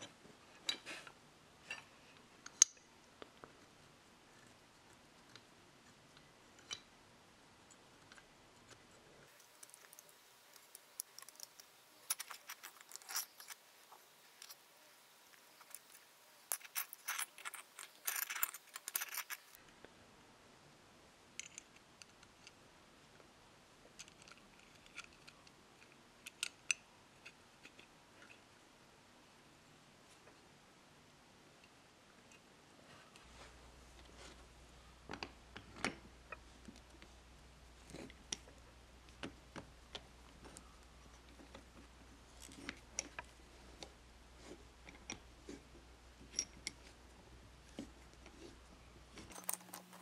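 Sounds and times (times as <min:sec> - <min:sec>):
small metal parts clinking: 0:09.4 - 0:13.7, 0:14.3 - 0:19.6, 0:49.2 - 0:50.0.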